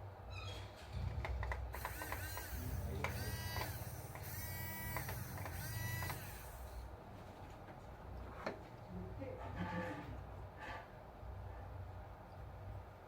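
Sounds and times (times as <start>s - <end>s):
electric motor and gearbox whining: 1.3s - 6.8s.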